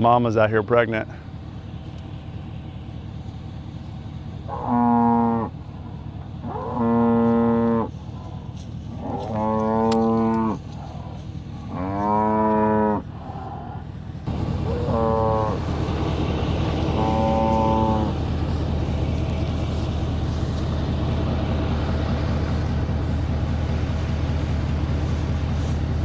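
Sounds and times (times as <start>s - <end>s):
cows mooing: 4.5s - 5.5s, 6.4s - 25.8s.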